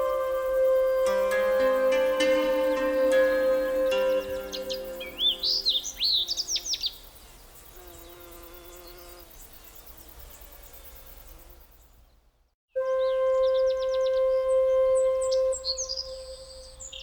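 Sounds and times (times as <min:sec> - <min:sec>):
musical tones: 0:00.0 - 0:06.0, 0:12.8 - 0:16.9
small bird chirping: 0:00.0 - 0:12.2.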